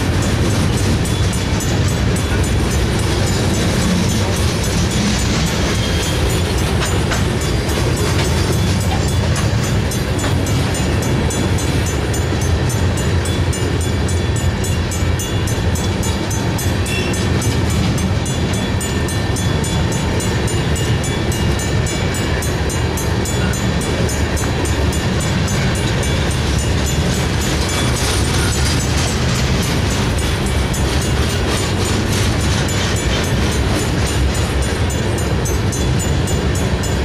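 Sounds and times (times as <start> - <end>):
crossing bell ringing: 0.0 - 37.0
freight train rumbling past: 0.0 - 37.0.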